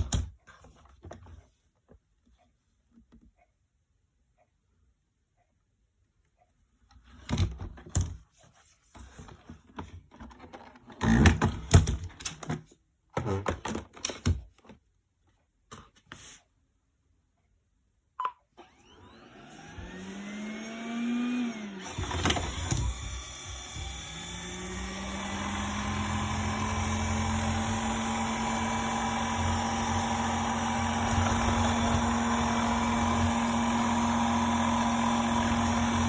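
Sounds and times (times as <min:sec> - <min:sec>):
suction motor whining: 0:18.6 - 0:36.0.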